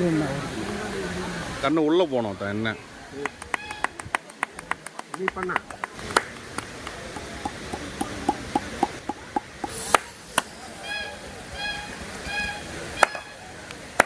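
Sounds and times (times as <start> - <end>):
honk-like pitched calls: 10.8 - 12.7.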